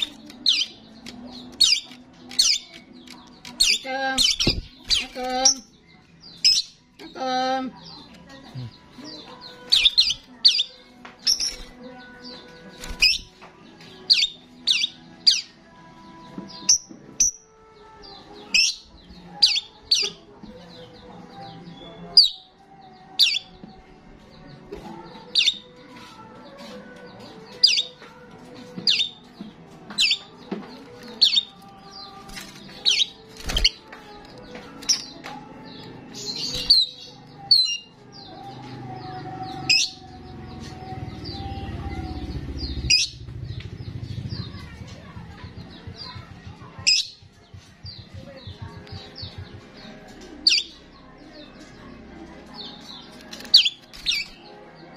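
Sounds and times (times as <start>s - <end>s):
starling calling: 31.2s - 33.8s, 42.1s - 43.3s.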